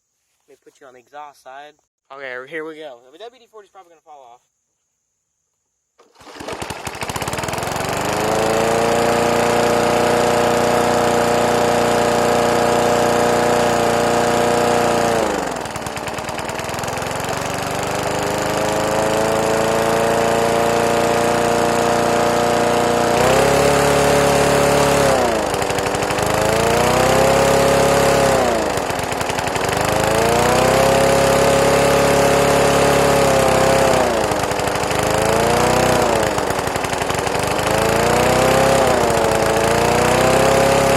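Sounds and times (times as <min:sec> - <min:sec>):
lawn mower engine running: 0:06.0 - 0:40.9.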